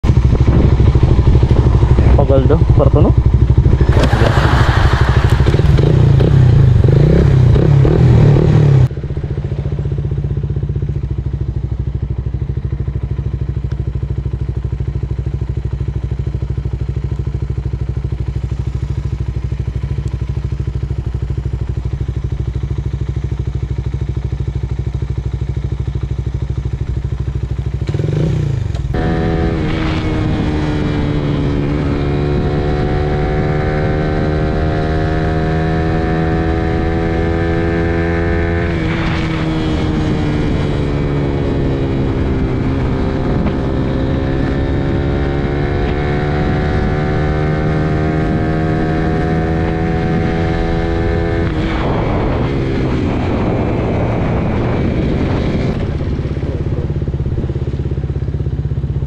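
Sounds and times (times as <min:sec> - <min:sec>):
motorcycle engine idling: 0:00.0 - 0:04.1, 0:08.8 - 0:29.0, 0:55.8 - 0:59.0.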